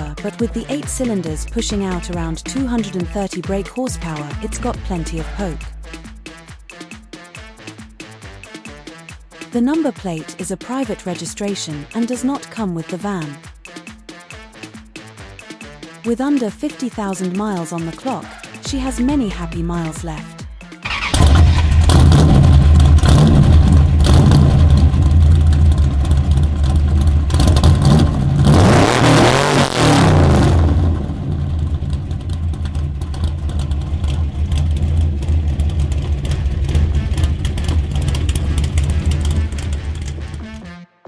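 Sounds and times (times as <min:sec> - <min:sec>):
van engine rumbling: 0:20.8 - 0:28.6, 0:30.2 - 0:40.6.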